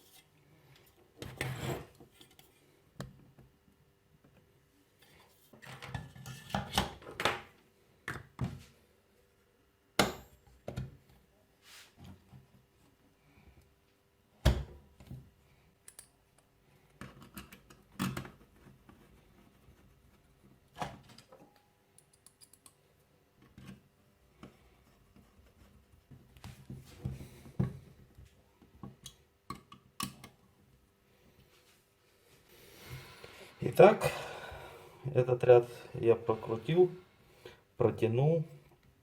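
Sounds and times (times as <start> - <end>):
metal parts and tools clicking: 22.0 - 22.8.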